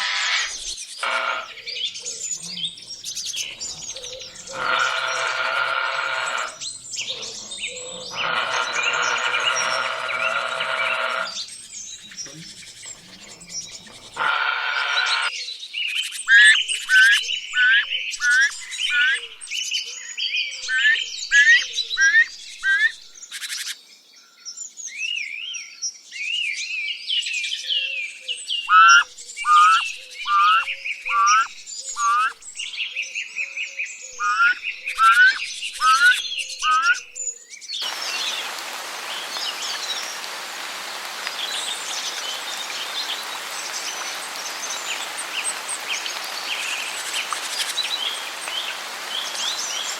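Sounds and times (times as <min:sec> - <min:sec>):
harsh buzzy bird call: 0:00.0 - 0:01.6, 0:04.4 - 0:06.6, 0:08.1 - 0:11.5, 0:14.1 - 0:15.3, 0:16.2 - 0:19.3, 0:28.6 - 0:32.4, 0:34.1 - 0:37.0
high bird twittering: 0:15.9 - 0:19.6, 0:20.6 - 0:23.8, 0:28.6 - 0:32.8, 0:34.1 - 0:37.3
downward-slurred whistled bird notes: 0:28.6 - 0:32.8.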